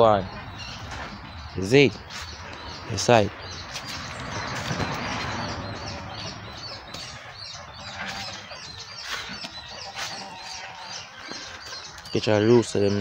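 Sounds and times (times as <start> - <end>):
small birds chirping: 0.0 - 13.0
rustling through vegetation: 7.8 - 12.6.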